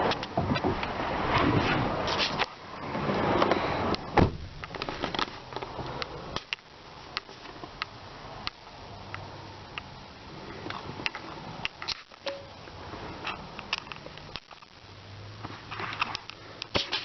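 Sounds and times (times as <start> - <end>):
car door shutting thump: 4.1 - 4.6.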